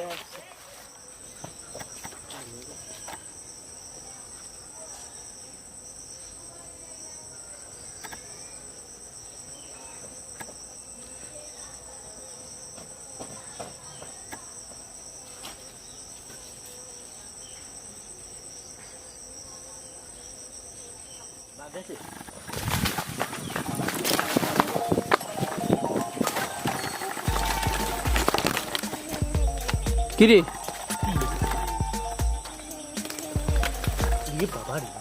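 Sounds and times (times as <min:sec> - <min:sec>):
insects chirring: 0:00.0 - 0:35.0
faint clicks: 0:08.0 - 0:08.3
high steady tones: 0:24.5 - 0:35.0.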